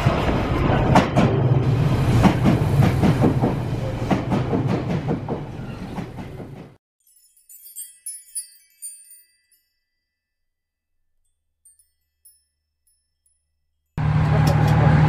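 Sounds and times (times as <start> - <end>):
electric train passing: 0.0 - 6.8
soft chime-like music: 7.0 - 14.0.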